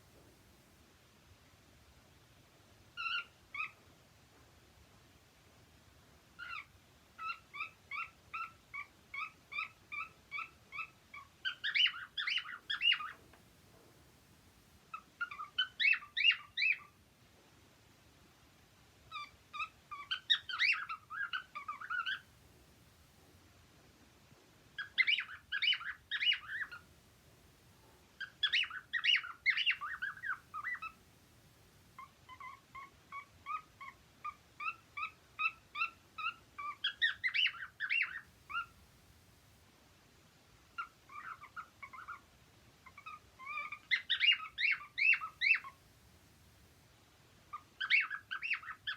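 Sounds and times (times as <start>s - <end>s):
cockatiels chirping: 3.0s - 3.8s, 6.4s - 13.4s, 14.9s - 17.0s, 19.1s - 22.3s, 24.8s - 26.8s, 28.2s - 31.0s, 32.0s - 38.8s, 40.7s - 45.8s, 47.5s - 48.9s.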